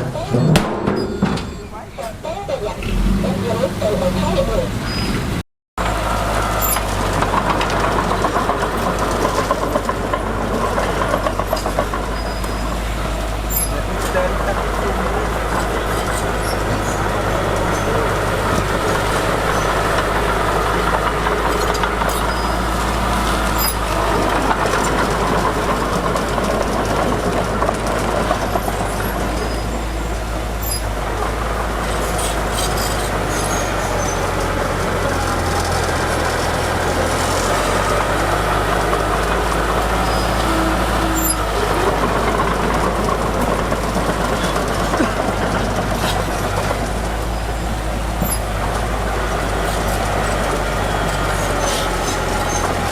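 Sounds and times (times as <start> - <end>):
earthmoving machinery engine hum: 0.0 - 52.9.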